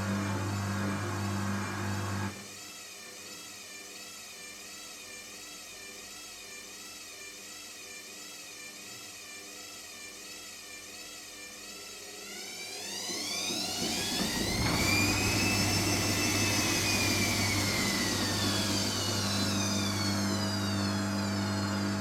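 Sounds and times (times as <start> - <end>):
washing machine motor whine: 0.0 - 2.6, 10.7 - 22.0.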